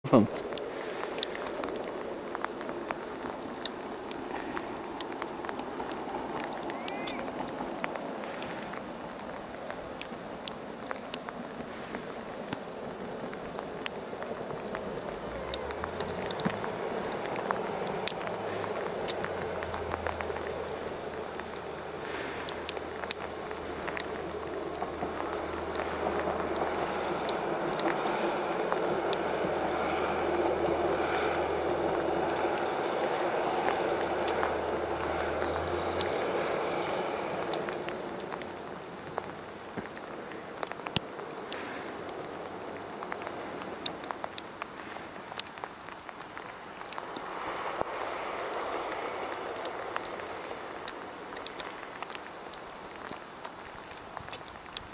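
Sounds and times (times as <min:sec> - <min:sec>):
faint ticks: 0:00.2 - 0:54.9
distant diesel train rumbling: 0:11.3 - 0:45.1.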